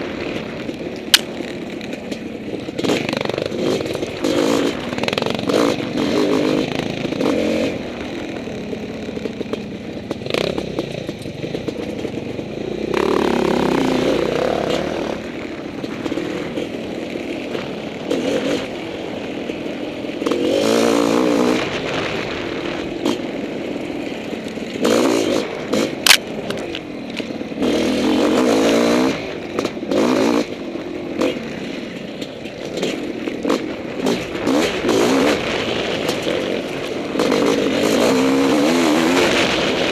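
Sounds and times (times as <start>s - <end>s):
dirt bike engine revving: 0.0s - 39.9s
bike clattering and scraping: 22.9s - 39.9s.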